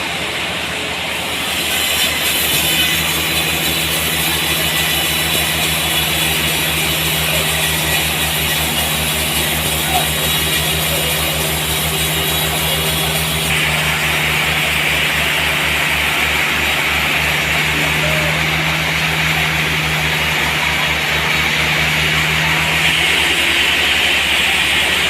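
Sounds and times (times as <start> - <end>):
sawmill engine throb: 0.0 - 25.0
saw blade hissing through log: 1.1 - 19.5.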